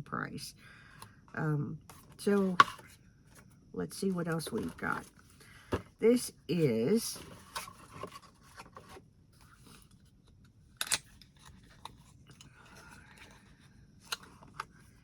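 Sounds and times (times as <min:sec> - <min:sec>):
packaging rustling and scraping: 0:04.1 - 0:06.0, 0:06.8 - 0:10.2.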